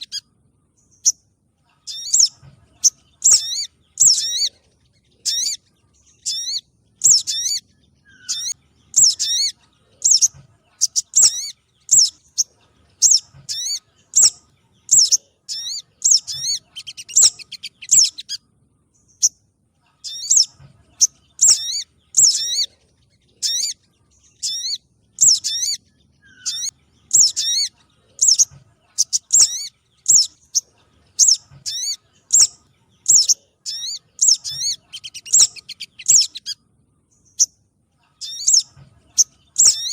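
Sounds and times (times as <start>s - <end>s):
short high bird chirps: 23.4s - 30.6s, 31.2s - 36.6s, 38.2s - 39.9s.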